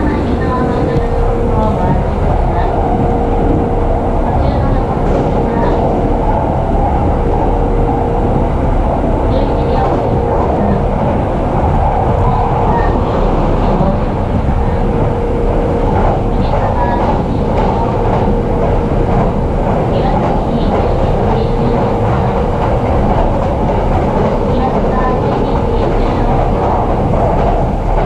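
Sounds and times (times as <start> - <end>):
constant hum: 0.0 - 28.0
train wheels rumbling on rails: 0.0 - 28.0.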